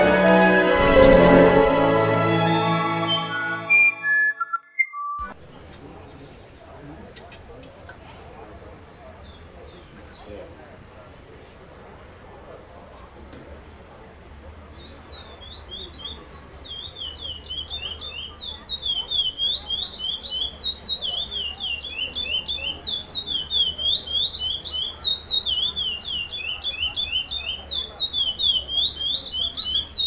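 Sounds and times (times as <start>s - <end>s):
finch singing whistled notes: 2.6s - 5.3s, 14.8s - 30.0s.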